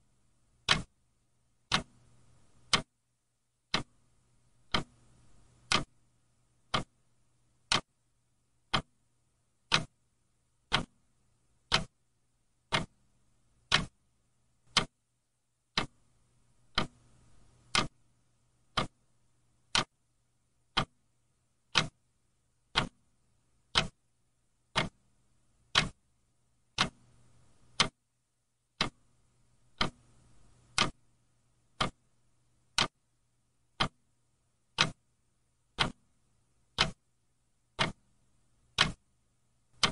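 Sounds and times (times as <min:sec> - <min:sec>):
mechanical clock ticking: 0:00.6 - 0:01.0, 0:01.6 - 0:02.9, 0:03.7 - 0:04.0, 0:04.6 - 0:06.0, 0:06.6 - 0:07.0, 0:07.6 - 0:07.9, 0:08.6 - 0:09.0, 0:09.6 - 0:10.0, 0:10.6 - 0:11.0, 0:11.6 - 0:12.0, 0:12.6 - 0:14.0, 0:14.6 - 0:15.0, 0:15.7 - 0:18.0, 0:18.6 - 0:19.0, 0:19.6 - 0:20.0, 0:20.6 - 0:21.0, 0:21.7 - 0:22.0, 0:22.7 - 0:23.1, 0:23.7 - 0:24.0, 0:24.7 - 0:26.1, 0:26.7 - 0:28.0, 0:28.7 - 0:29.1, 0:29.7 - 0:31.1, 0:31.7 - 0:32.1, 0:32.7 - 0:33.0, 0:33.7 - 0:34.1, 0:34.7 - 0:35.1, 0:35.7 - 0:36.1, 0:36.7 - 0:37.0, 0:37.7 - 0:39.1.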